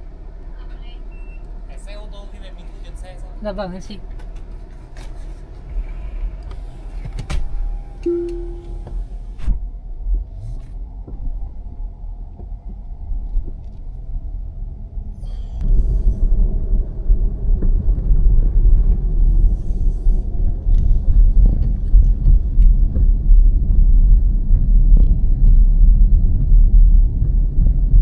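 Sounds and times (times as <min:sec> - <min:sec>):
car road rumble: 0:00.0 - 0:28.0
short steady tone: 0:08.0 - 0:09.0.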